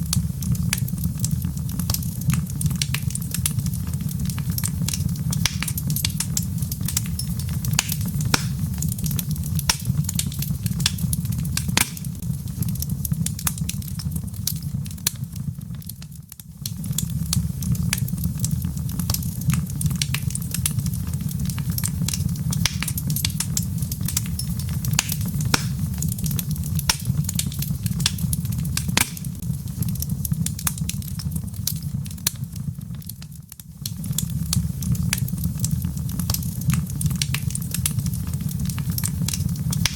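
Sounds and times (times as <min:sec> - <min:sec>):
steady low rumble: 0:00.0 - 0:15.7, 0:16.7 - 0:32.5
wood fire crackling: 0:00.0 - 0:39.9.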